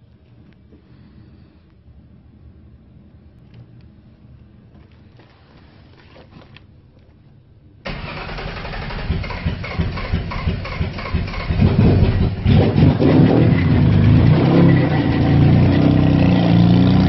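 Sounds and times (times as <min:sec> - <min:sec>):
car engine starting and running: 0:07.8 - 0:17.0.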